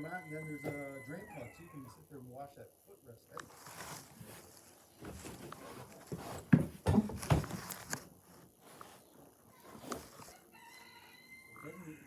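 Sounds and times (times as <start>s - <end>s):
knocks and thumps: 5.0s - 7.9s.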